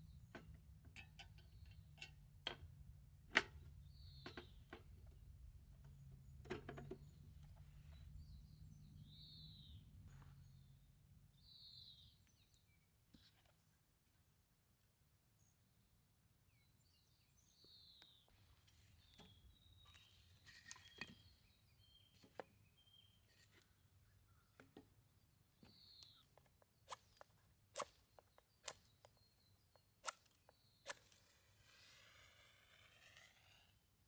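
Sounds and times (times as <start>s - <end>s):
faint bird chirps: 7.0s - 13.6s, 16.5s - 27.3s.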